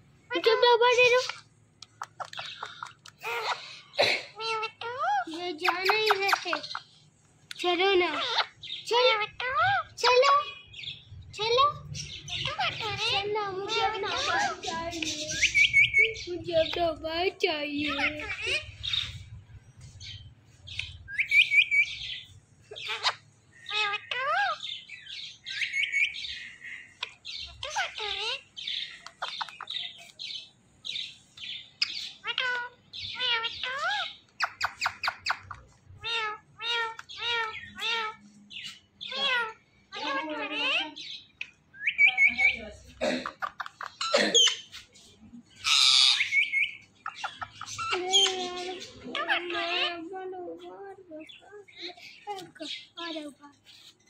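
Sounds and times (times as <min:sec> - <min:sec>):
parrot calling and screeching: 0:00.3 - 0:16.8, 0:17.7 - 0:19.4, 0:20.0 - 0:44.9, 0:45.5 - 0:50.1
parrot chirping and whistling: 0:15.2 - 0:16.2, 0:20.8 - 0:22.0, 0:41.8 - 0:42.5, 0:45.6 - 0:48.0.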